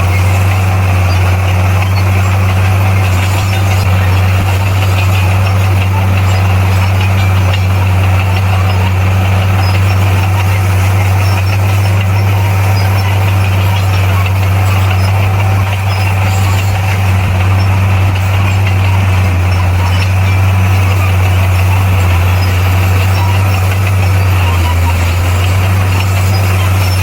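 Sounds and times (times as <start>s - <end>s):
diesel engine low drone: 0.0s - 27.0s.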